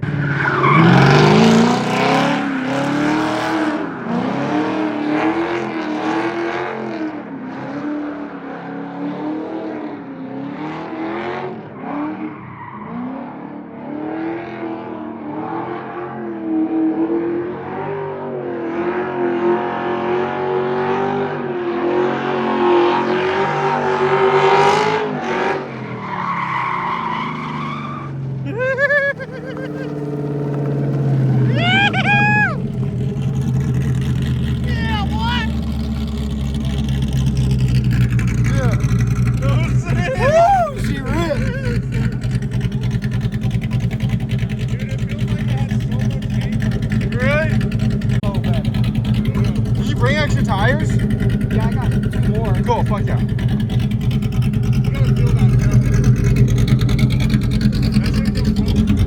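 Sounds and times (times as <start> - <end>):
car engine revving: 0.0 - 59.0
tyres squealing: 30.9 - 32.7.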